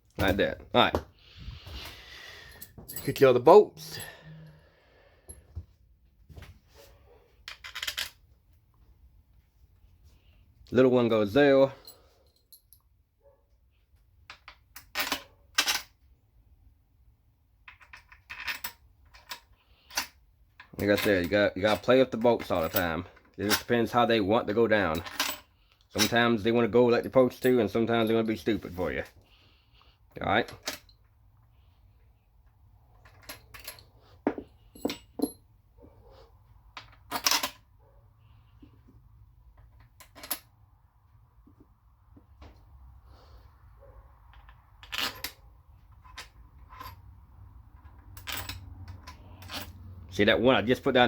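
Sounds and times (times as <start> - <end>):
metal bolts clinking: 2.5 - 4.5, 17.7 - 29.2, 33.0 - 36.0, 36.7 - 37.7, 39.6 - 40.5, 44.3 - 47.1, 47.8 - 49.8.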